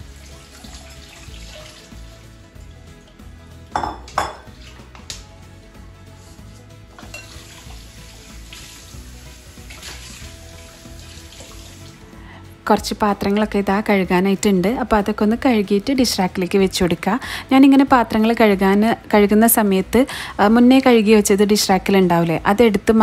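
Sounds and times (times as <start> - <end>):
dishes and cutlery clinking: 3.7 - 5.2, 6.9 - 7.8.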